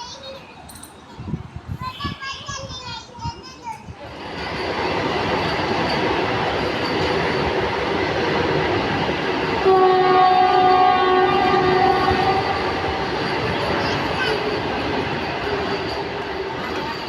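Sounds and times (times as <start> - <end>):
train rumbling: 1.2 - 17.0
locomotive horn: 9.6 - 13.1.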